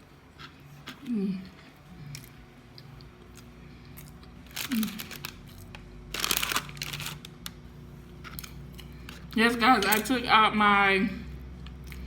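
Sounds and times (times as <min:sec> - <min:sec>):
paper packaging crinkling: 0:04.4 - 0:07.6.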